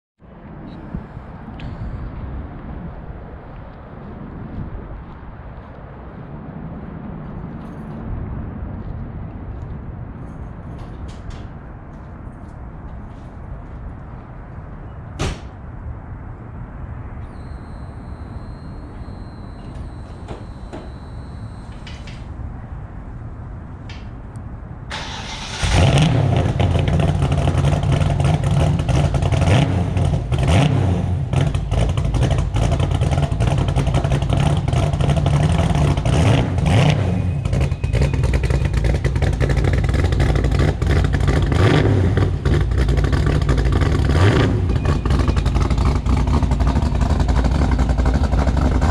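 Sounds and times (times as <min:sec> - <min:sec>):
faint high whine: 0:16.6 - 0:24.1
car engine cranking and starting: 0:24.9 - 0:30.7, 0:31.3 - 0:48.9.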